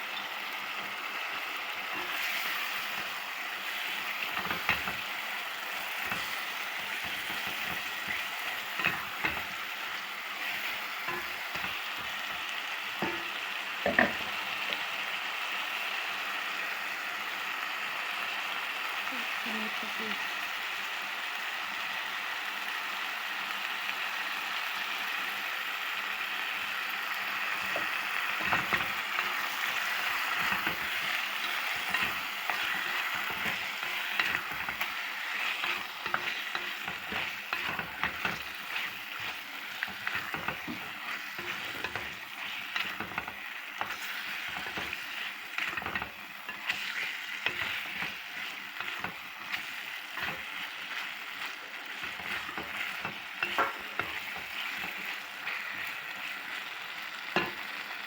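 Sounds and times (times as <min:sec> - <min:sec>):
chicken sizzling in a pan: 0:00.0 - 0:58.0
utensil scraping a pan: 0:27.4 - 0:56.4.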